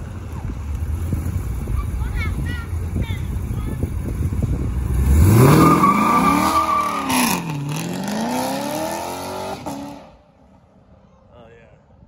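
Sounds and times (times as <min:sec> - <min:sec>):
car engine accelerating hard: 0:04.6 - 0:10.1.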